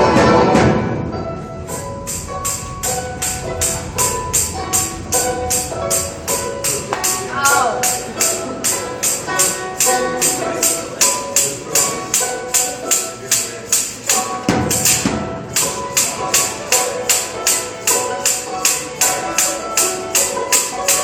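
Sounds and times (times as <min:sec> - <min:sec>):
live band music: 0:01.6 - 0:21.0
bright percussion beat: 0:01.7 - 0:21.0.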